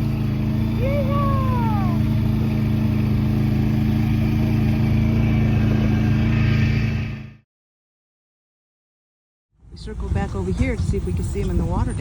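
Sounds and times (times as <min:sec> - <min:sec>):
atv engine running: 0:00.0 - 0:07.4.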